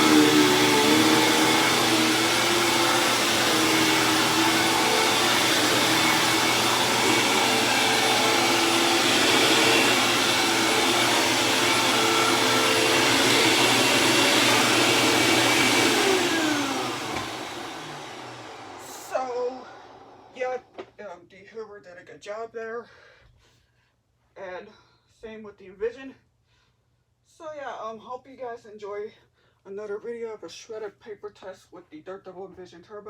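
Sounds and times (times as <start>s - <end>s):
motor winding down: 0.0s - 20.4s
vacuum cleaner running: 0.0s - 20.7s.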